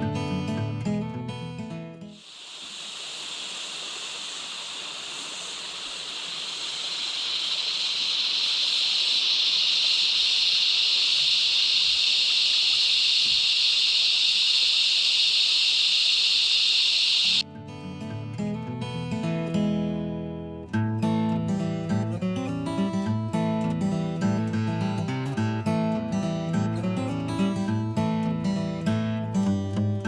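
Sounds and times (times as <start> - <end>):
cicada chorus: 2.1 - 17.4.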